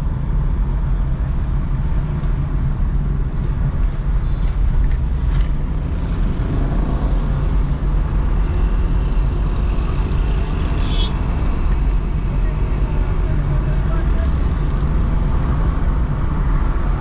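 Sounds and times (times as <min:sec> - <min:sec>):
traffic rumble of engines and tyres: 0:00.0 - 0:17.0.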